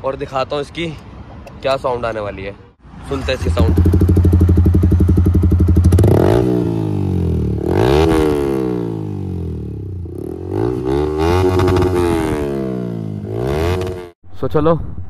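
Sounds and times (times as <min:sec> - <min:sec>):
motorcycle engine revving: 0:02.8 - 0:14.2.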